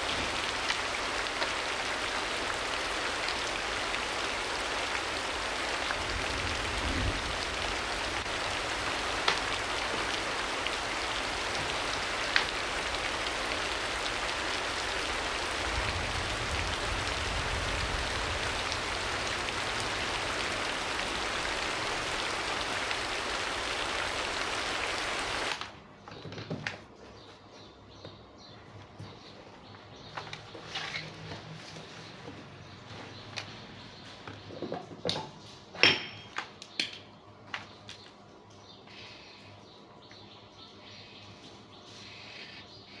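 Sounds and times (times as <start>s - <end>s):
steady rain: 0.0s - 25.7s.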